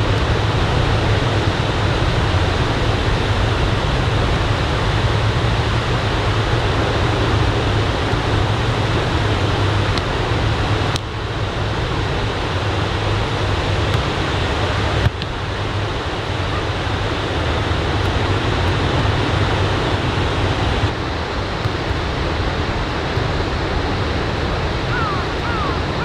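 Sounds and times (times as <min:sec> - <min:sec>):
ocean surf breaking: 0:19.8 - 0:26.0.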